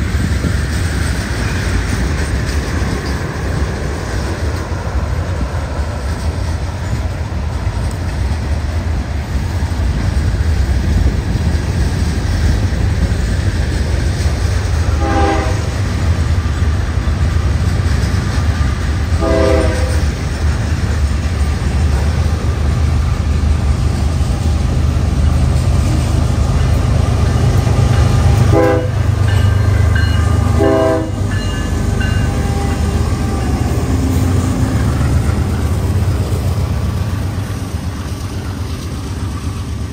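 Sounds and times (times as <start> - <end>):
diesel locomotives rumbling: 0.0 - 39.9
train air horn blasts: 14.9 - 16.0, 19.2 - 20.2, 27.7 - 29.3, 30.0 - 34.9.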